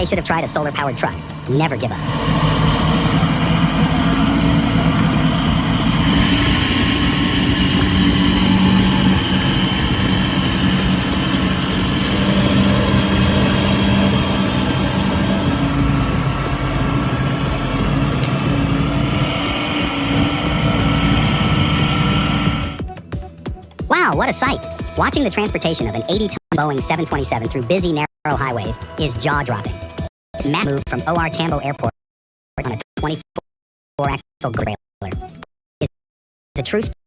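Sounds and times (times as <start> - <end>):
truck diesel engine running: 0.0 - 22.8.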